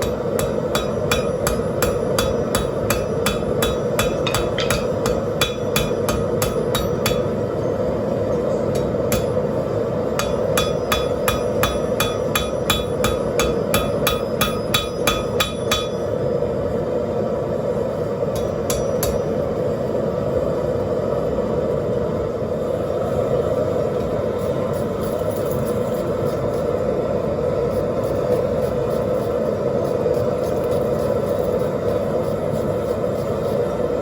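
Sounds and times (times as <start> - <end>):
hammer ringing on anvil: 0.0 - 7.4, 8.7 - 9.4, 10.2 - 16.1, 18.3 - 19.3.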